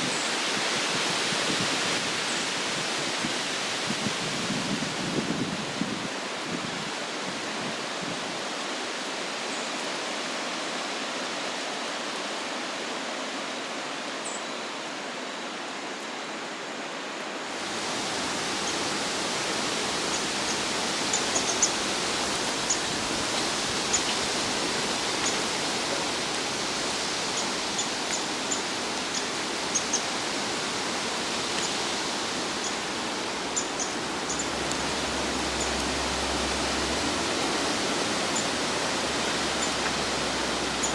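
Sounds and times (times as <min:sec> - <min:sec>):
wind rushing through trees: 0:00.0 - 0:40.9.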